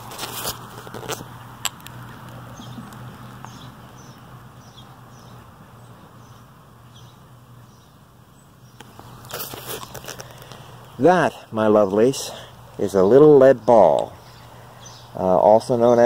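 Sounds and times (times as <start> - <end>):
small bird chirping: 1.2 - 11.0, 12.8 - 15.3.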